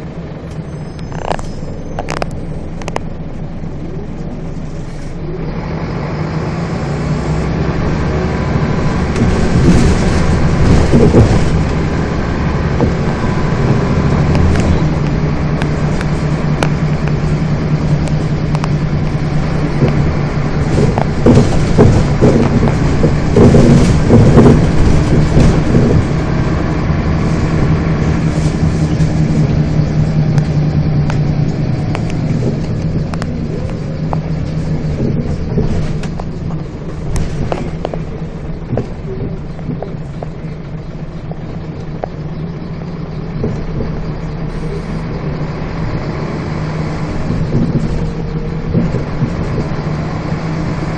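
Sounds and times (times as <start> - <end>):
bus engine running: 0.0 - 50.9
rattling and knocking: 8.6 - 42.2, 46.7 - 50.9.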